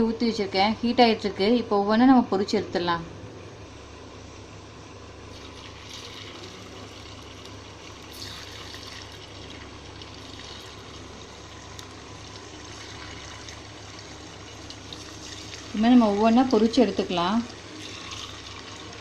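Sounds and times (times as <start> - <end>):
chicken sizzling in hot oil: 5.3 - 19.0.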